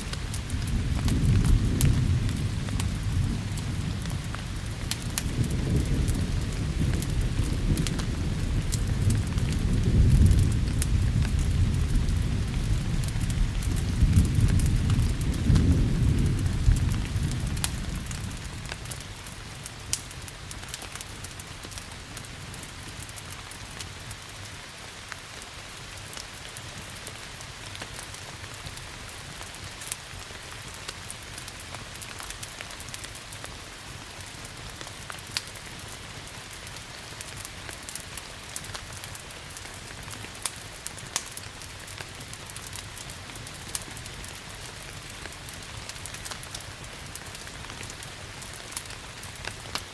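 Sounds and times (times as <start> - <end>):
thunder rumbling: 0.0 - 19.9
log fire crackling: 0.0 - 49.9
steady rain: 0.0 - 49.9.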